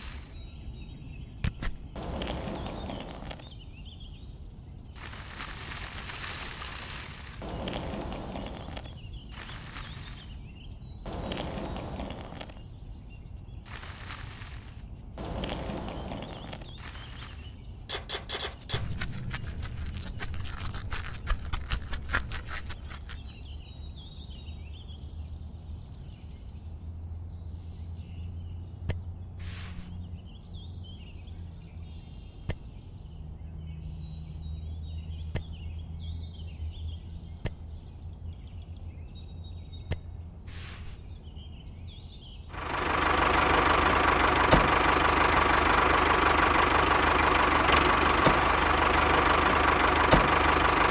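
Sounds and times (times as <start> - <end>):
faint bird chirps: 0.0 - 18.5
low hum: 5.0 - 12.8, 13.7 - 23.6, 42.5 - 50.9
model tractor engine running: 15.2 - 18.9, 42.5 - 50.9.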